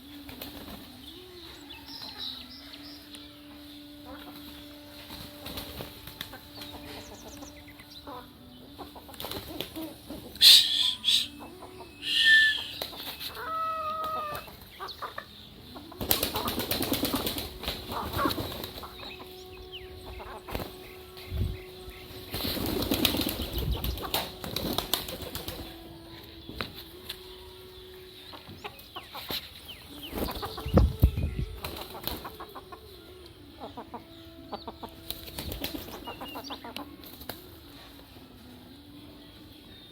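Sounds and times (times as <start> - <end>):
chicken calls and clucks: 0.8 - 31.0, 31.6 - 39.9
wing flapping: 15.9 - 26.0, 35.0 - 36.3.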